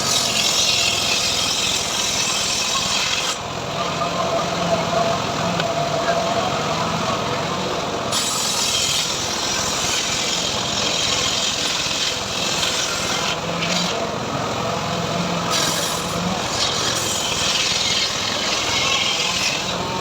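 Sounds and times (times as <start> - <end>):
saw hissing through wood: 0.0 - 3.4, 8.1 - 14.0, 15.5 - 20.0.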